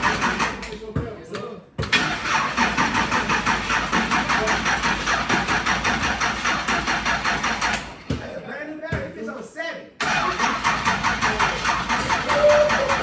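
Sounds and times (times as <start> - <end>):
engine cranking by starter: 0.0 - 0.9, 1.8 - 8.3, 10.0 - 13.0.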